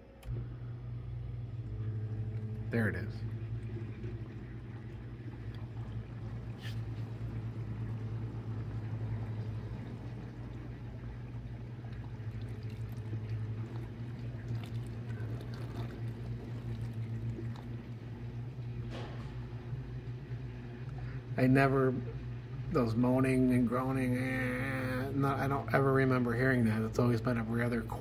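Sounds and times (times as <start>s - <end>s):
dishwasher moaning hum: 0.0s - 28.0s
water sloshing in dishwasher: 1.6s - 19.9s.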